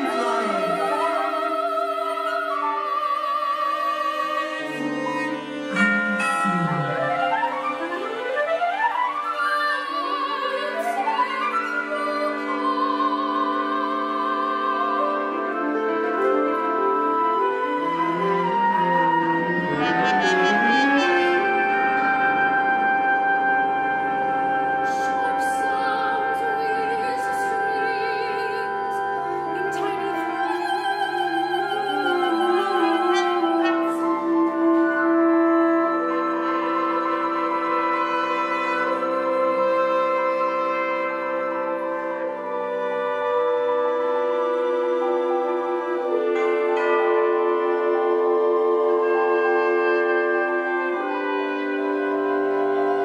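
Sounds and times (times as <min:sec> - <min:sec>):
soprano singing with vibrato: 0:00.0 - 0:08.0, 0:08.8 - 0:21.6, 0:24.8 - 0:41.0
chamber ensemble playing: 0:00.0 - 0:53.0.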